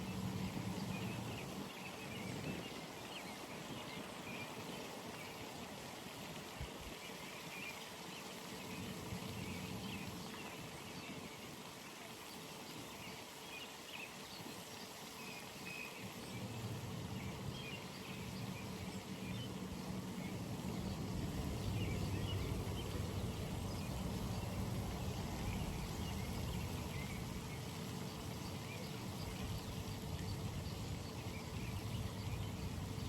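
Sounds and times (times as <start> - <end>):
low steady rumble: 16.3 - 33.0.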